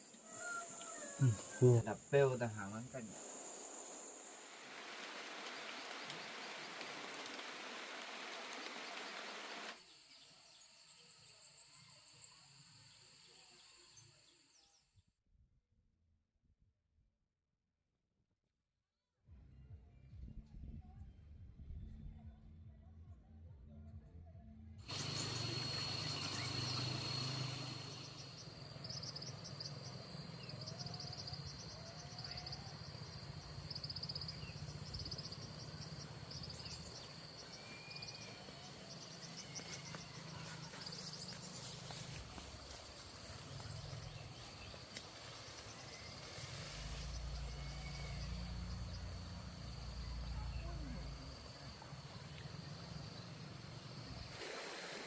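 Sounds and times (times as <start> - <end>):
insect trilling and chirping: 0.0 - 14.4, 24.9 - 54.4
faint short whistling calls: 37.4 - 40.3.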